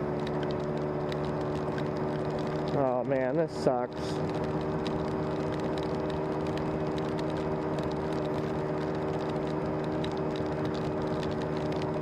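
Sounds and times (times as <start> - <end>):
rain ticking on gear: 0.0 - 12.0
scooter engine running: 0.0 - 12.0.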